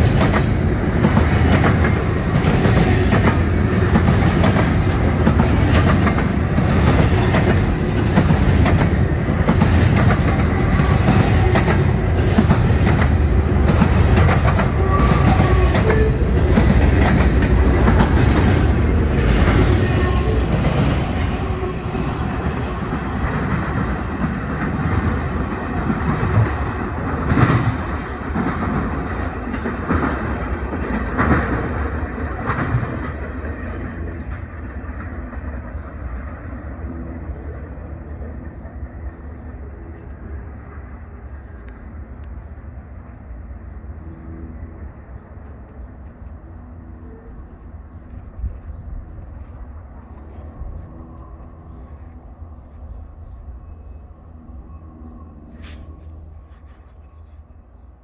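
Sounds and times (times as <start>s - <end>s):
freight cars rumbling past: 0.0s - 41.2s.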